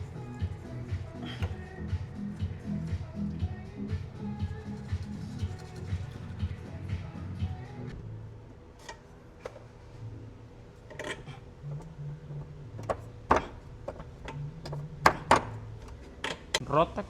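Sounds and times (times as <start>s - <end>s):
tools and parts clicking and knocking: 10.8s - 16.6s.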